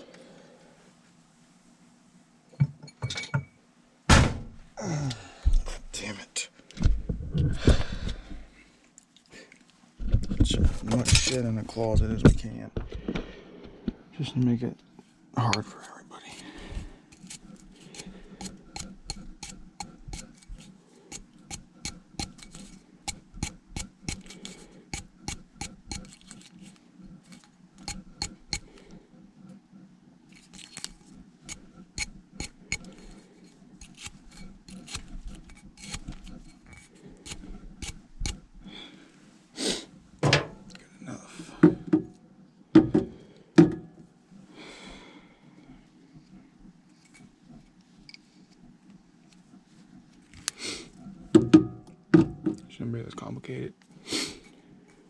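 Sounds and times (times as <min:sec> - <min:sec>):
knocks and clunks: 0:40.2 - 0:40.6, 0:42.8 - 0:43.9.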